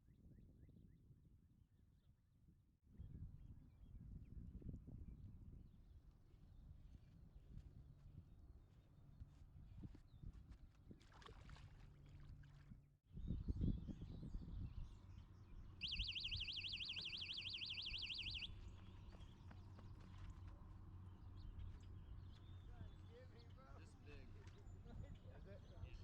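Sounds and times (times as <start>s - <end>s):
faint outdoor background: 13.1s - 26.0s
electronic alarm warbling: 15.8s - 18.5s.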